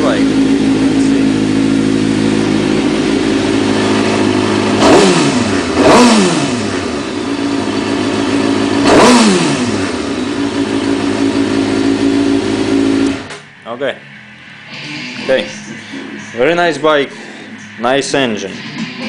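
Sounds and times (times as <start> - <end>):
motorcycle engine idling and revving: 0.0 - 17.8.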